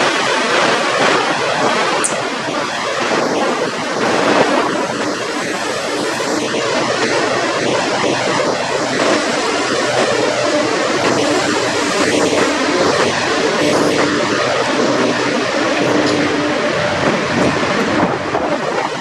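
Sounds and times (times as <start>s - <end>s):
broad rushing noise: 0.0s - 19.0s
diesel truck engine running: 3.8s - 19.0s.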